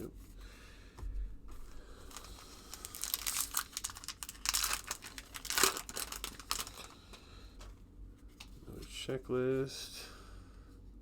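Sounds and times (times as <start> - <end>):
card pack wrapper crinkling: 2.1 - 7.0.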